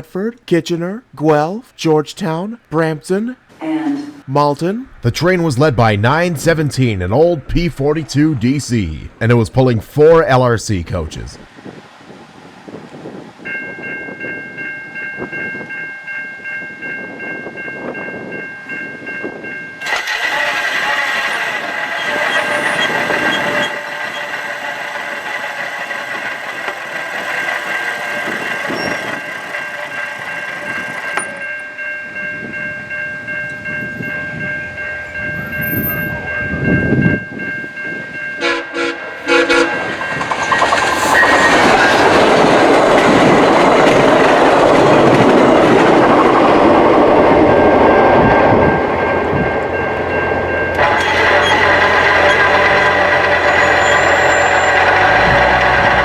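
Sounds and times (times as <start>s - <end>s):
train horn blasts: 19.8s - 24.3s, 38.4s - 39.9s, 50.7s - 56.0s
train wheels clattering on rails: 19.8s - 31.7s, 39.2s - 56.0s.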